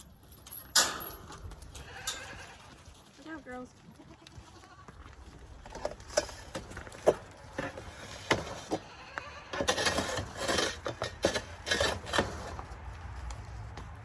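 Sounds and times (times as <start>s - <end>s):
goats bleating: 1.7s - 2.9s, 3.9s - 5.1s, 8.7s - 9.7s.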